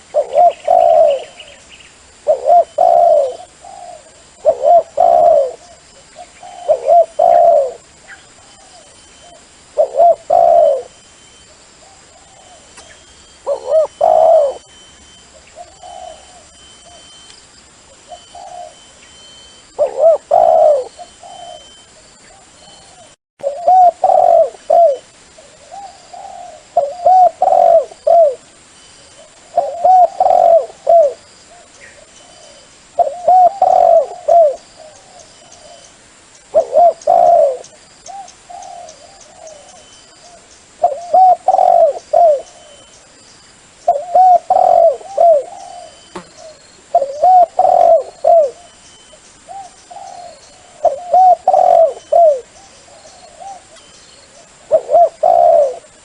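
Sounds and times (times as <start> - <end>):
dove cooing: 0.0 - 17.2, 17.9 - 28.5, 29.1 - 35.9, 36.5 - 43.2, 43.8 - 56.0.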